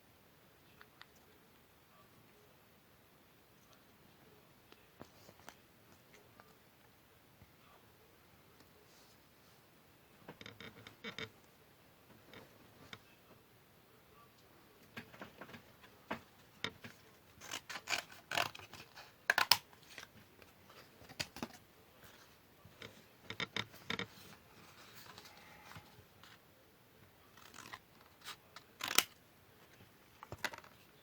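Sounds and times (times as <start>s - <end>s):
scissors cutting paper: 17.4s - 19.6s, 27.4s - 29.1s.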